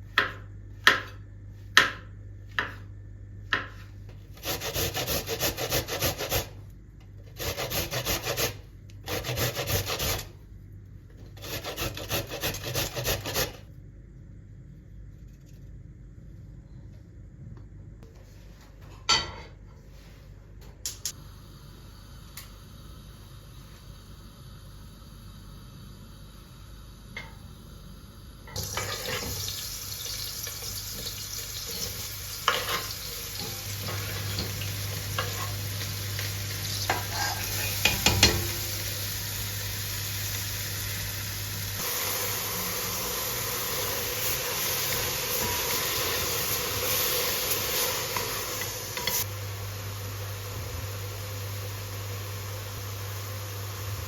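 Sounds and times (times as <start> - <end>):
food sizzling in a pan: 28.5 - 54.0.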